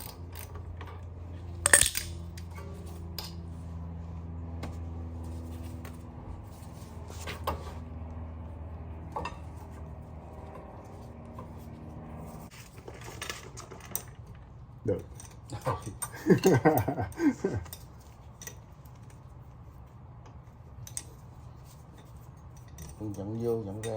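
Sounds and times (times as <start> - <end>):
hand tools clicking and clinking: 0.0 - 3.5, 14.9 - 18.6
low mechanical hum: 0.0 - 23.9.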